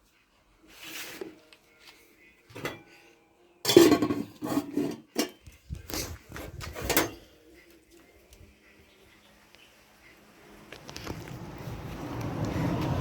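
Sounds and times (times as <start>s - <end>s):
dishes and cutlery clattering: 2.5s - 3.0s, 3.6s - 5.5s, 6.7s - 7.3s.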